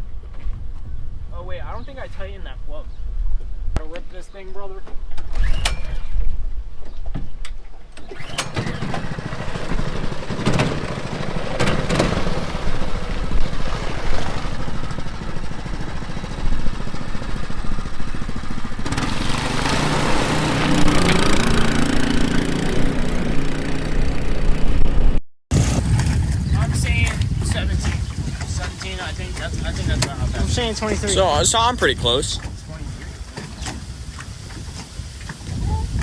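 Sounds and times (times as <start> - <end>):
small gas engine running hard: 8.0 - 26.4.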